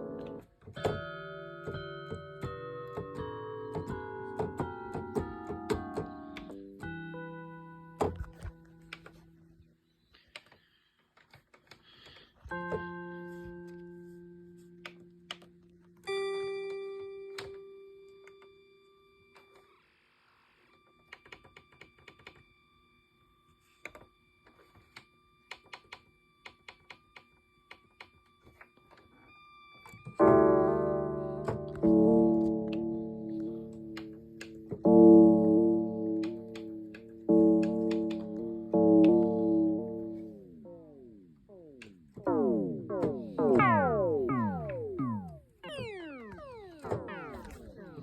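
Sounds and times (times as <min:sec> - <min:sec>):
synthesizer long held notes: 0:30.2 - 0:48.0
burst of synthesizer notes: 0:38.7 - 0:48.0.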